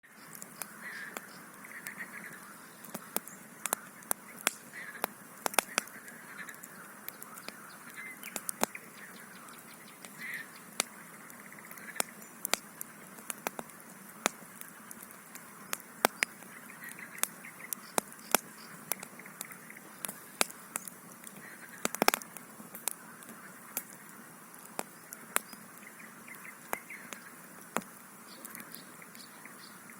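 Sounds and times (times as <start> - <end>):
campfire crackling: 0.0 - 29.9.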